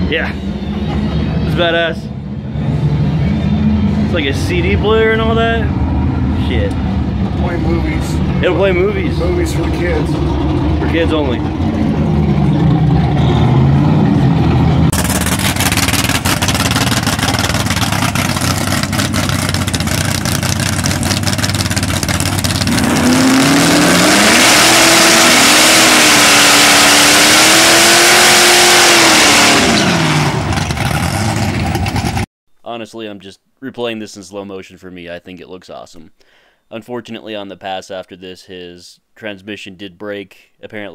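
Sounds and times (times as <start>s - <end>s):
drag race car engine: 0.0s - 32.3s.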